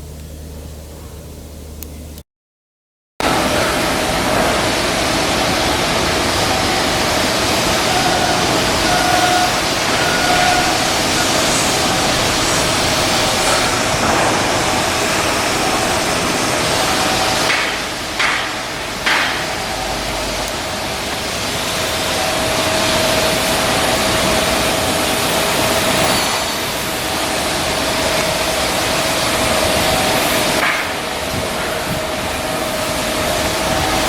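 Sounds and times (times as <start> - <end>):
industrial hiss: 3.2 - 34.0
sharp knocks: 17.5 - 19.6.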